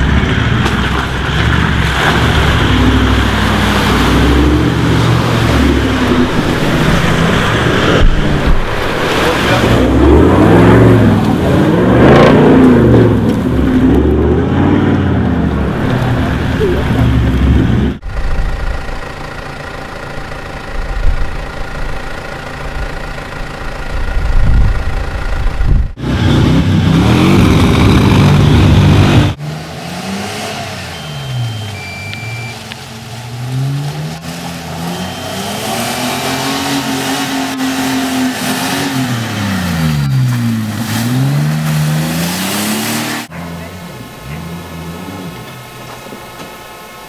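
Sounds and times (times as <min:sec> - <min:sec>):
off-road engines revving in mud: 0:00.0 - 0:18.6, 0:19.2 - 0:47.0
high whining tones: 0:30.4 - 0:38.3.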